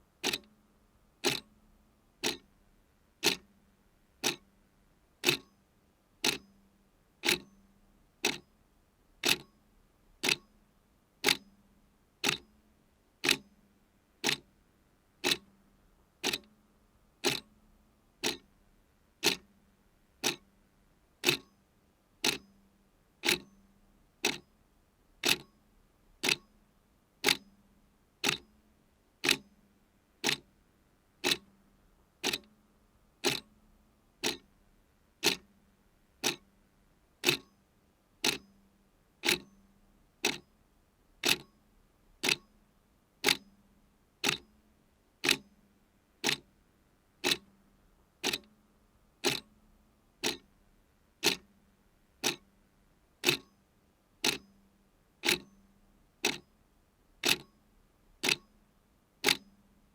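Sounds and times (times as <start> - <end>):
clock ticking: 0.2 - 0.5, 1.2 - 1.5, 2.2 - 2.4, 3.2 - 3.4, 4.2 - 4.4, 5.2 - 5.5, 6.2 - 6.4, 9.2 - 9.5, 10.2 - 10.4, 12.2 - 12.4, 13.2 - 13.4, 14.2 - 14.4, 15.2 - 15.4, 16.2 - 16.5, 17.2 - 17.5, 18.2 - 18.4, 19.2 - 19.4, 20.2 - 20.4, 21.2 - 21.5, 22.2 - 22.4, 23.2 - 23.5, 25.2 - 25.5, 26.2 - 26.4, 27.2 - 27.4, 28.2 - 28.4, 29.2 - 29.4, 30.2 - 30.4, 31.2 - 31.5, 32.2 - 32.5, 33.2 - 33.5, 34.2 - 34.5, 35.2 - 35.5, 36.2 - 36.4, 37.2 - 37.5, 38.2 - 38.4, 39.2 - 39.5, 40.2 - 40.4, 41.2 - 41.5, 42.2 - 42.5, 43.2 - 43.4, 44.2 - 44.4, 45.2 - 45.4, 46.2 - 46.4, 47.2 - 47.5, 48.2 - 48.5, 49.2 - 49.5, 50.2 - 50.5, 51.2 - 51.5, 52.2 - 52.4, 53.2 - 53.5, 54.2 - 54.5, 55.2 - 55.5, 56.2 - 56.4, 57.2 - 57.5, 58.2 - 58.5, 59.2 - 59.4.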